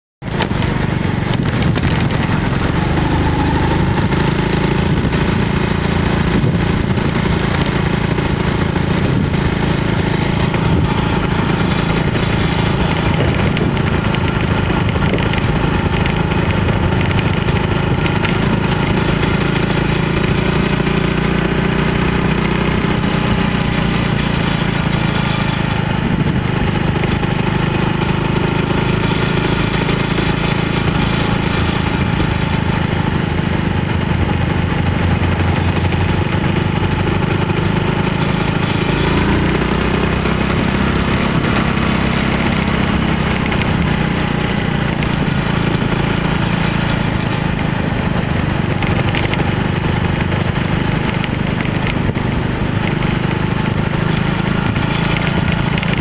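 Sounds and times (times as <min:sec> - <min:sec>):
motorcycle engine running: 0:00.2 - 0:56.0.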